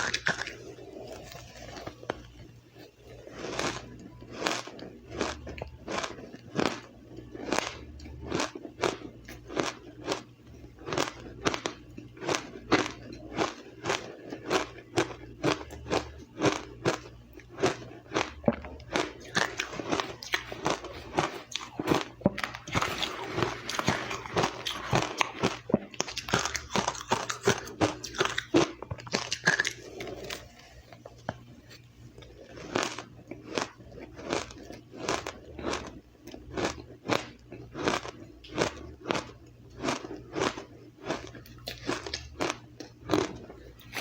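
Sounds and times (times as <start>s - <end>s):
person crunching ice: 18.9s - 30.5s, 32.2s - 44.0s.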